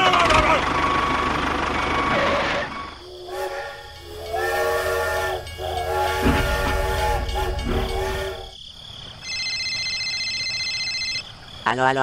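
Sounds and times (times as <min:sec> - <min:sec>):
steam train whistle: 0:03.0 - 0:08.6
low thud: 0:05.4 - 0:08.5.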